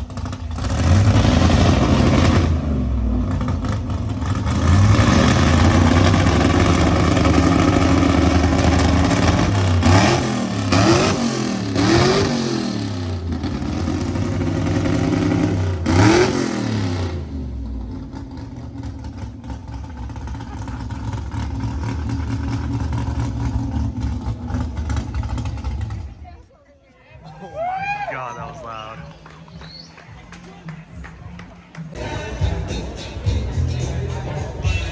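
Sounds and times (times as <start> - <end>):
car engine revving and idling: 0.0 - 26.5.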